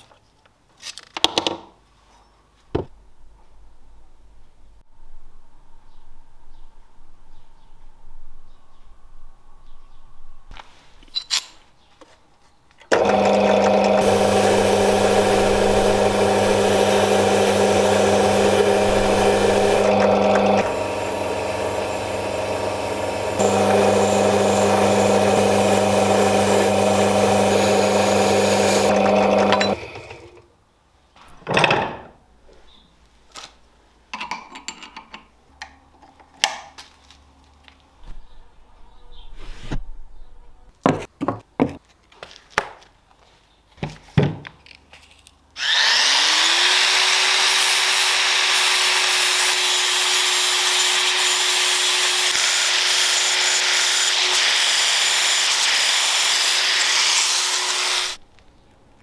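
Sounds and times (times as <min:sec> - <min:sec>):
power tool running: 0:12.9 - 0:30.4, 0:45.6 - 0:58.2.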